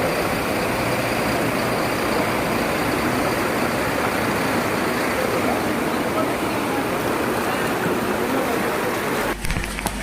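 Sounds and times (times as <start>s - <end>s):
rushing water: 0.0s - 10.0s.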